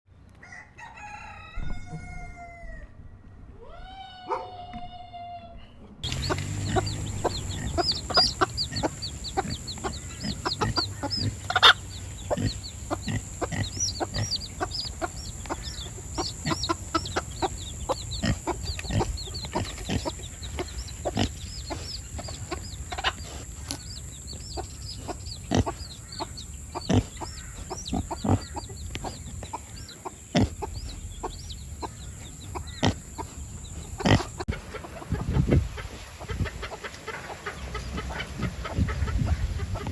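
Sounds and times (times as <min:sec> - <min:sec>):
chickens clucking: 0:06.0 - 0:39.9.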